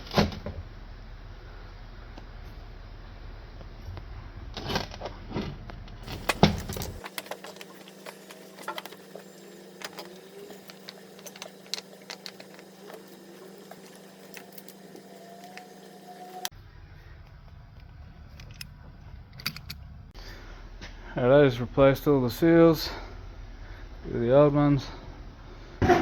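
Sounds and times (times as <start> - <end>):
faint steady hum: 5.9 - 25.9
clinks of hand tools and metal parts: 6.0 - 15.7.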